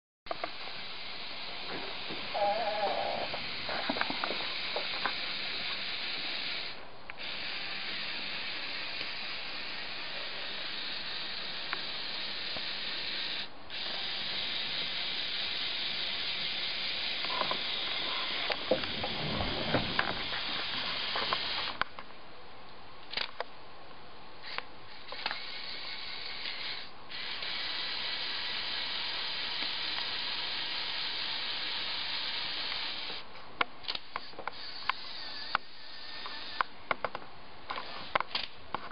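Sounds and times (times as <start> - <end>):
toy motors whirring: 0.4 - 18.8, 19.9 - 21.8, 24.4 - 33.2, 33.8 - 36.8
sharp plastic clicks: 33.8 - 37.2.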